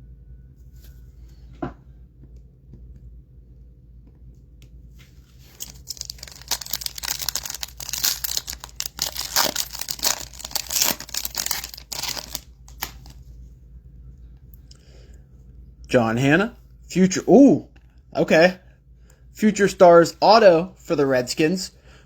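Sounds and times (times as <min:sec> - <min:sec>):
foil wrappers tearing and crinkling: 0:05.4 - 0:13.2.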